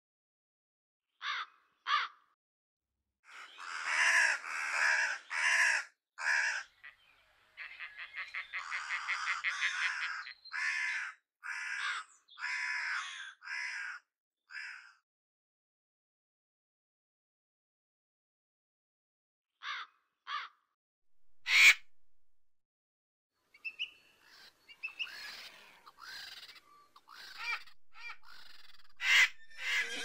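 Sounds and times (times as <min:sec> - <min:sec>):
harsh raspy bird squawks: 0:01.2 - 0:02.2, 0:03.3 - 0:06.7, 0:07.6 - 0:14.9, 0:21.4 - 0:22.0, 0:25.0 - 0:30.0
fast rattling bird chatter: 0:25.0 - 0:30.0.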